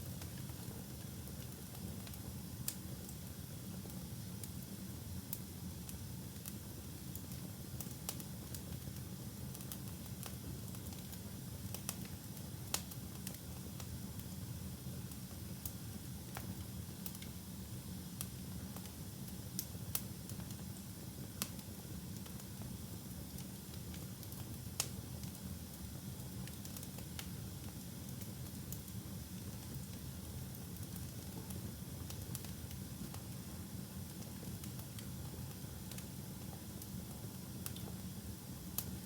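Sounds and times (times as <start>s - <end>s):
wood fire burning: 0.1s - 39.0s
fire crackling and popping: 5.8s - 14.3s, 15.0s - 17.4s, 18.2s - 38.0s.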